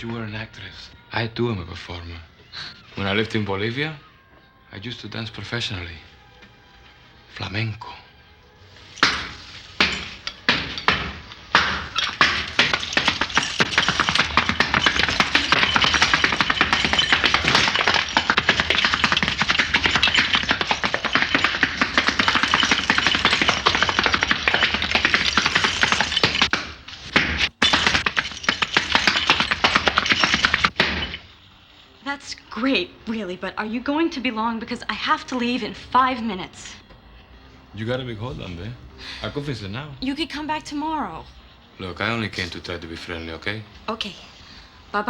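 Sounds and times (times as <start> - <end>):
shoes stamping and tapping on floor: 9.0 - 31.2.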